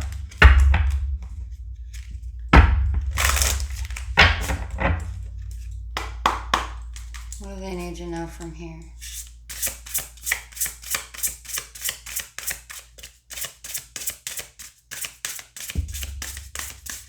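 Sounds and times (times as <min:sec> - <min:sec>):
low rumble of handling noise: 0:00.0 - 0:11.2, 0:15.8 - 0:17.0.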